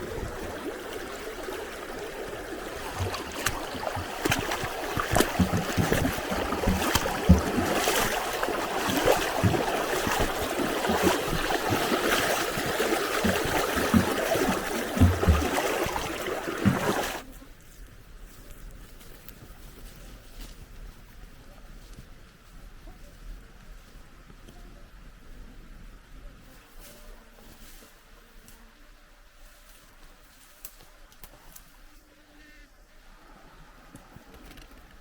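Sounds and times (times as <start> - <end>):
small sharp splashes or knocks: 0.0 - 17.2
water splashing and trickling: 0.0 - 17.3.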